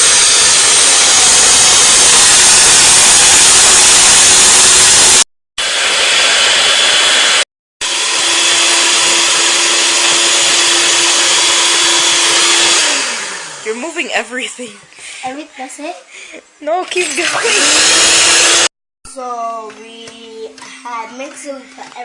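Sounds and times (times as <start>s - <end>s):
electric mixer beating batter: 0.0s - 14.0s, 16.9s - 18.7s.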